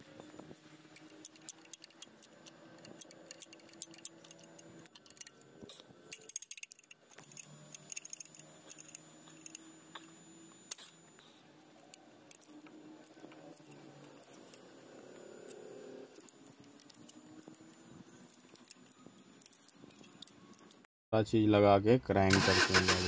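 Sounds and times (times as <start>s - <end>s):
metallic clicks of hand tools: 0.9s - 10.1s.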